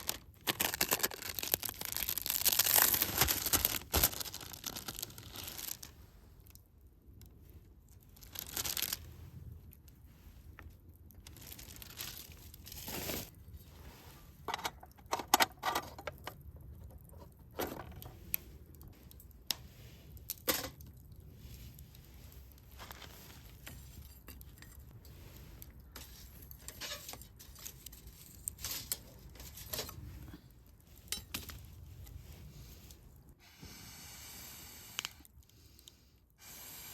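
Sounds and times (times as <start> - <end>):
bag rustling and crinkling: 0.0 - 5.9, 8.0 - 9.1, 11.2 - 13.6, 21.6 - 24.5.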